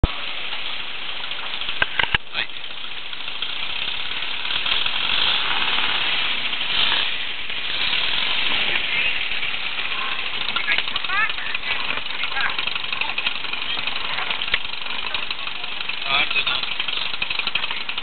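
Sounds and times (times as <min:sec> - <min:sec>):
sports car engine idling: 0:00.0 - 0:18.0.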